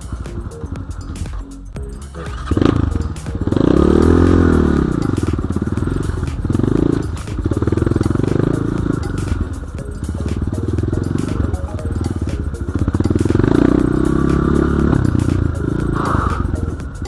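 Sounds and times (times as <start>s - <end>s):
dirt bike engine revving: 2.1s - 9.4s, 10.3s - 17.0s.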